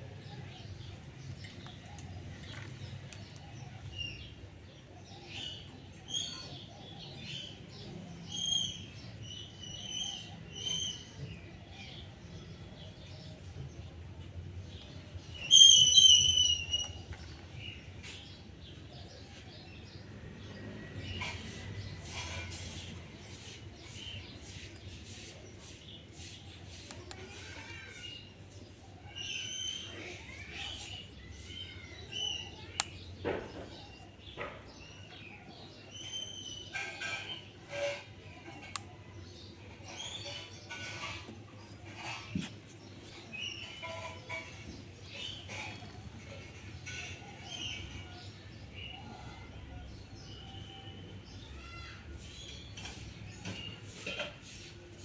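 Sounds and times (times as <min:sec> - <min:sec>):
parrot chirping and squeaking: 0:15.4 - 0:16.9.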